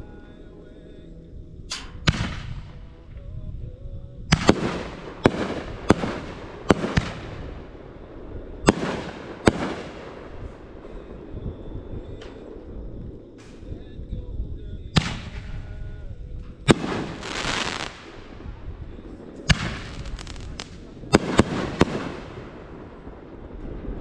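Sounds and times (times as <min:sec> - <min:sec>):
fireworks banging: 0:01.7 - 0:02.8, 0:04.3 - 0:13.8, 0:15.0 - 0:15.8, 0:16.6 - 0:24.0
fireworks hiss: 0:16.7 - 0:22.9.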